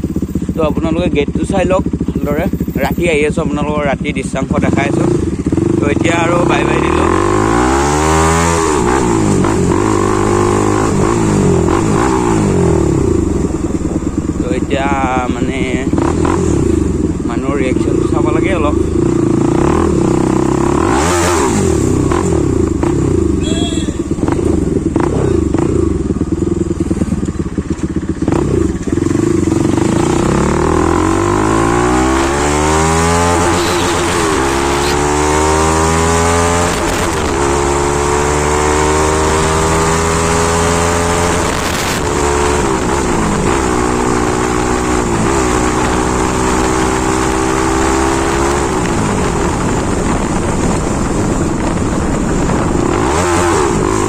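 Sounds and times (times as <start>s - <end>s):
motorcycle engine revving through gears: 0.0s - 54.0s.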